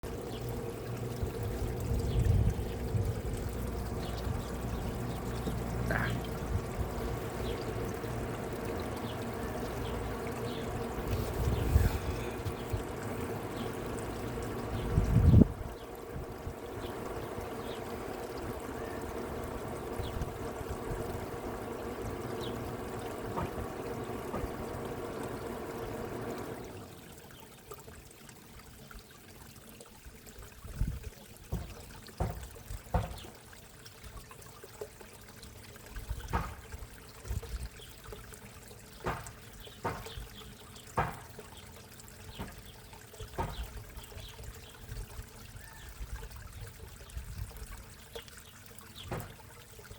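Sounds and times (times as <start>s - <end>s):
water trickling into pond: 0.0s - 49.9s
sharp knocks: 31.5s - 33.2s, 36.3s - 36.6s, 39.0s - 40.2s, 41.0s - 41.3s, 43.4s - 43.6s.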